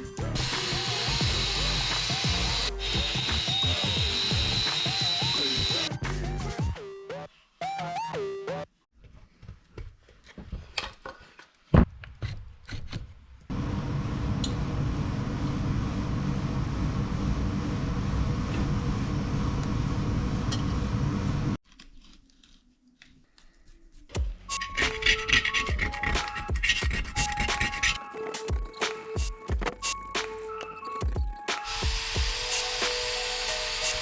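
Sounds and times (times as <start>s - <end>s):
machine with fast pulse: 0.4s - 5.9s.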